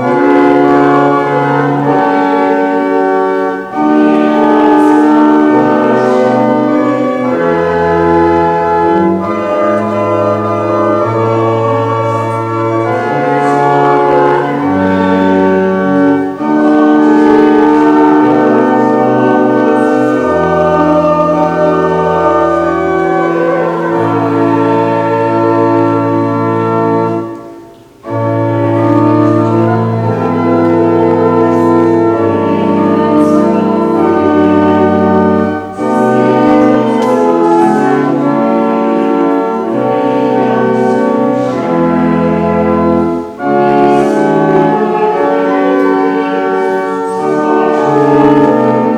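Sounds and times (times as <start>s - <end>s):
church organ chords: 0.0s - 48.9s.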